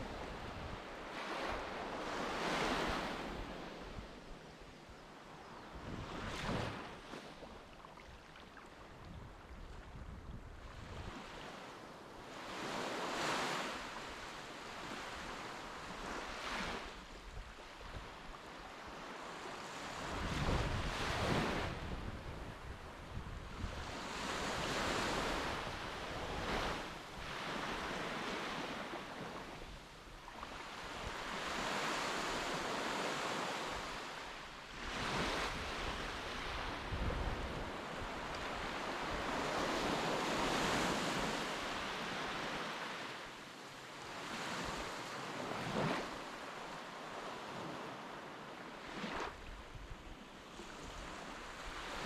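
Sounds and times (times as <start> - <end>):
wind buffeting microphone: 20.0 - 24.0, 34.8 - 39.7.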